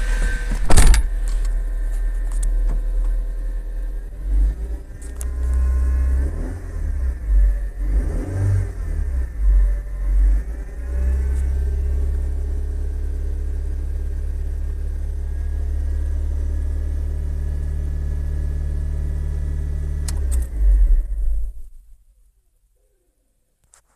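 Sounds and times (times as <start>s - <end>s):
loud bumps: 0.0s - 1.4s
car engine revving with whine: 0.0s - 22.0s.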